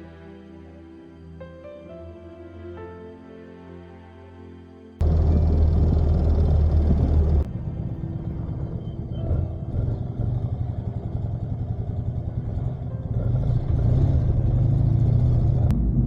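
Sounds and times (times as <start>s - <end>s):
motorcycle engine droning: 5.0s - 16.0s.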